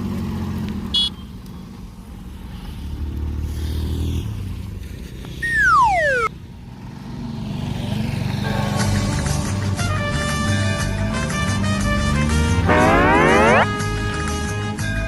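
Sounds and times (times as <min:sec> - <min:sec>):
falling whistle sound effect: 0:05.4 - 0:06.3, 0:12.7 - 0:13.7
music: 0:08.9 - 0:15.0.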